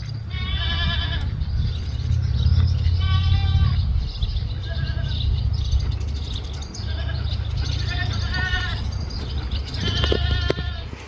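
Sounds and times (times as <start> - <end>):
low rumble: 0.0 - 10.8
goats bleating: 0.3 - 1.3, 2.9 - 3.8, 4.5 - 5.3, 6.6 - 11.0.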